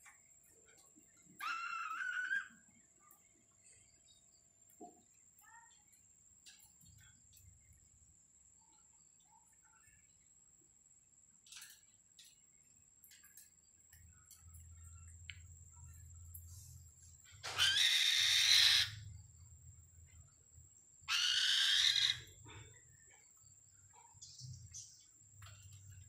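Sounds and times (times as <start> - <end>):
bird screeching: 1.4 - 2.6, 17.4 - 19.1, 21.1 - 22.4.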